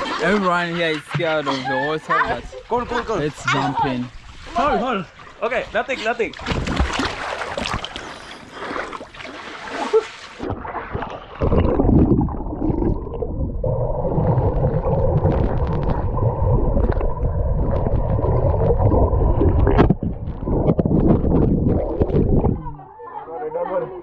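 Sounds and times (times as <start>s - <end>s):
water splashing: 0.0s - 22.8s
underwater gurgling and bubbling: 10.4s - 22.8s.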